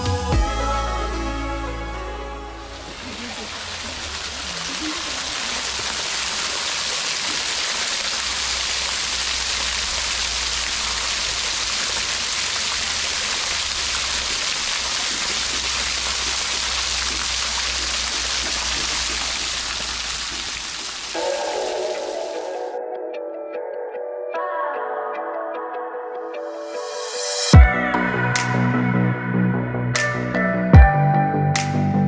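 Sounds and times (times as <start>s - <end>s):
flowing water rushing: 0.4s - 22.8s.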